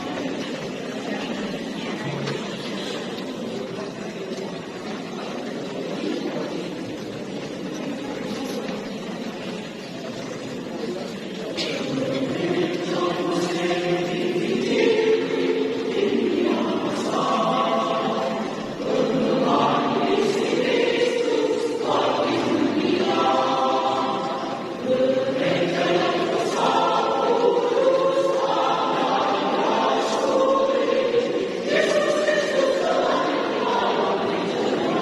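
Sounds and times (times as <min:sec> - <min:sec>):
choir singing long notes: 0:11.8 - 0:35.0.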